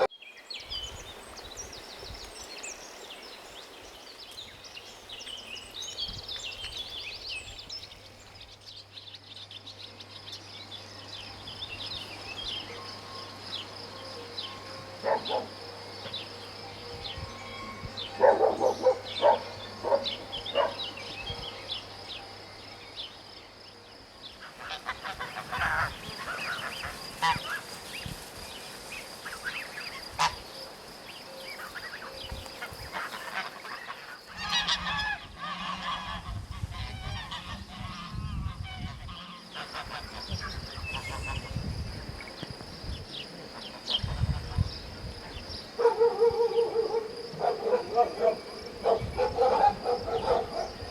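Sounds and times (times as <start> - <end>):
insects chirring: 0.0 - 50.9
geese honking: 12.0 - 22.4, 24.4 - 27.9, 29.2 - 30.5, 31.6 - 41.5.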